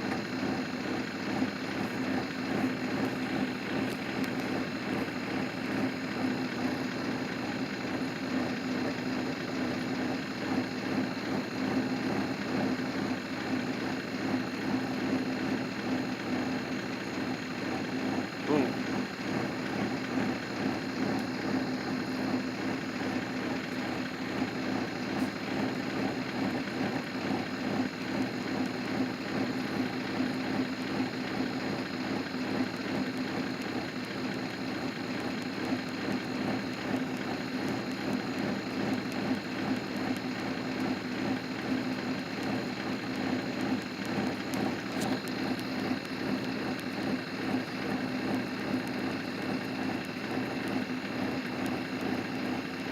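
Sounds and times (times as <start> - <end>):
vehicle engine hum: 0.0 - 52.9
rain patter: 32.4 - 52.9.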